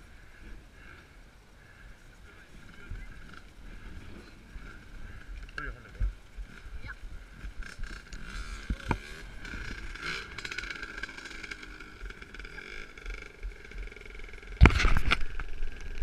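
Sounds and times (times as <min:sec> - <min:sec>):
distant motocross engines droning: 0:00.0 - 0:16.0.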